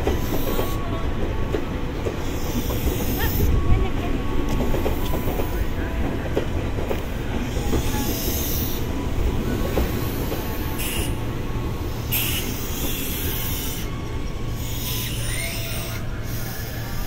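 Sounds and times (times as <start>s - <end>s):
train hissing: 0.0s - 17.0s
train wheels rumbling on rails: 0.0s - 17.0s.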